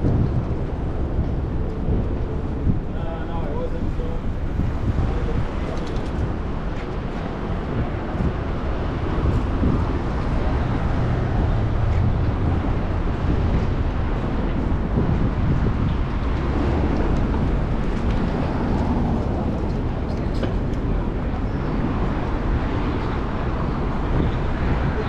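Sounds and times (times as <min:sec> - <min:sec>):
bicycle road noise: 0:00.0 - 0:25.0
wind rumble on microphone: 0:00.0 - 0:25.0.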